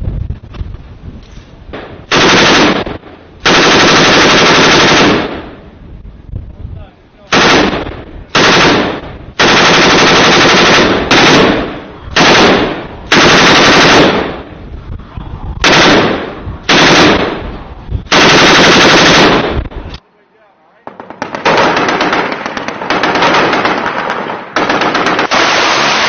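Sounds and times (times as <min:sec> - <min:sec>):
machine gun bursts: 0:02.1 - 0:05.4, 0:07.3 - 0:14.3, 0:16.7 - 0:17.3, 0:18.1 - 0:19.6.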